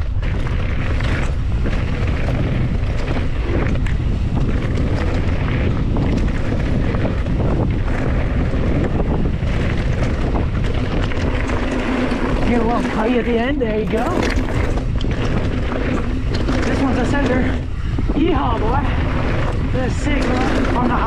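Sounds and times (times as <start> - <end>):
wind buffeting microphone: 0.0 - 21.0
tyre noise on dirt: 13.8 - 15.0
bike knocks and rattles: 13.8 - 15.2.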